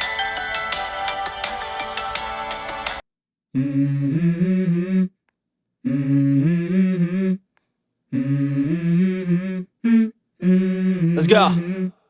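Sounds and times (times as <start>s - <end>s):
person humming a melody: 3.6s - 5.1s, 5.9s - 7.4s, 8.2s - 11.9s.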